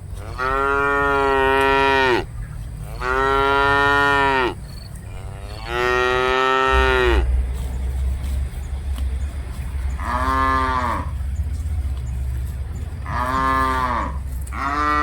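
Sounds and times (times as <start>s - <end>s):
cattle mooing: 0.2s - 7.3s, 9.9s - 11.2s, 13.0s - 15.0s.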